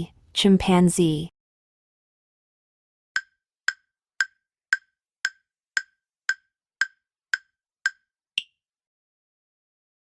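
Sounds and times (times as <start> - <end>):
timer ticking: 3.2 - 8.6.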